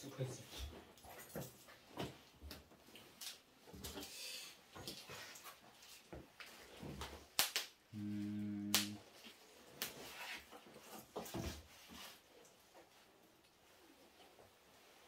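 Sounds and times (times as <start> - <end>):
low electric buzz: 7.9 - 9.0.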